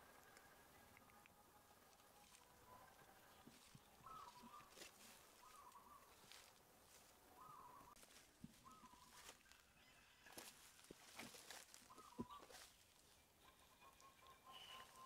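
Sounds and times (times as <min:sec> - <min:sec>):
bird calling faintly: 0:00.0 - 0:15.0.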